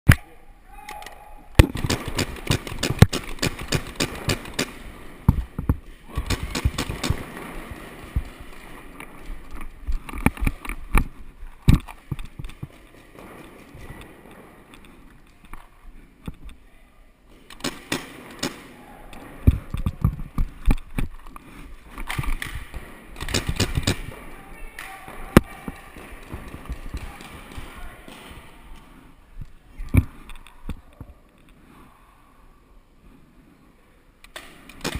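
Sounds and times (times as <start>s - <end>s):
paintball markers firing sharp pops: 1.6s - 8.4s, 17.5s - 18.7s, 21.9s - 24.2s, 34.3s - 34.9s.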